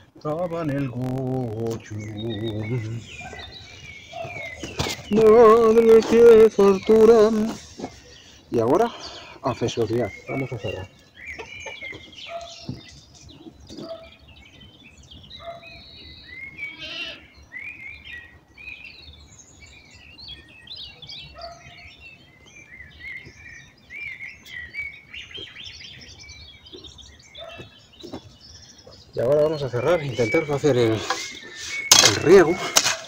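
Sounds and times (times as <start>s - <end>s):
small birds chirping and singing: 0.0s - 33.0s
lower animal calls: 16.5s - 17.3s.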